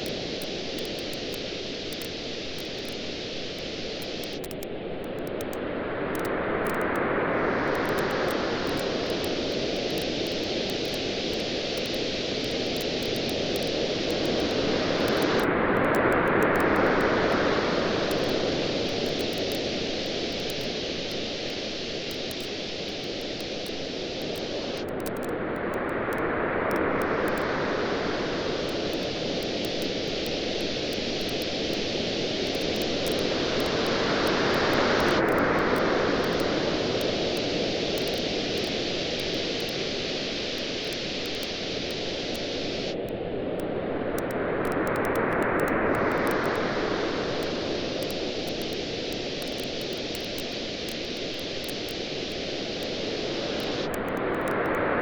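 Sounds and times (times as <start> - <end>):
campfire crackling: 0.0 - 4.6, 16.3 - 25.2, 28.2 - 43.0
ocean waves washing onto beach: 0.0 - 55.0.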